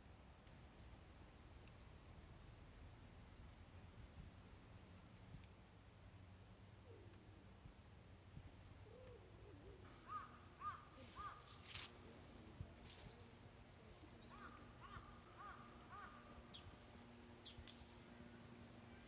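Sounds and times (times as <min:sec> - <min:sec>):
faint crows cawing: 0:08.8 - 0:11.9, 0:14.2 - 0:17.0.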